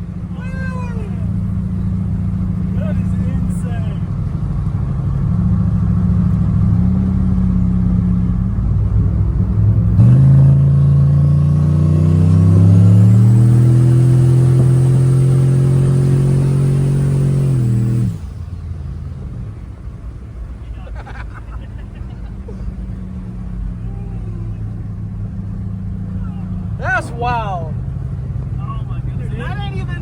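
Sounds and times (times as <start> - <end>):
high turbo whine: 0.0 - 20.6
truck engine accelerating: 0.0 - 30.0.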